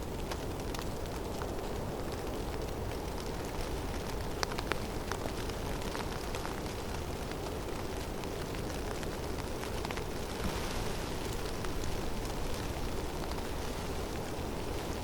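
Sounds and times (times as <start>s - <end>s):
falling snow ticking: 0.0s - 15.0s.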